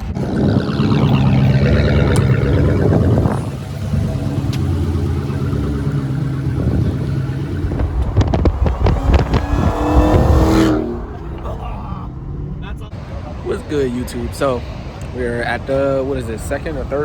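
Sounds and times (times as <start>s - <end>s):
wind on microphone: 0.0s - 4.5s, 5.8s - 11.5s
car engine running: 0.0s - 15.6s.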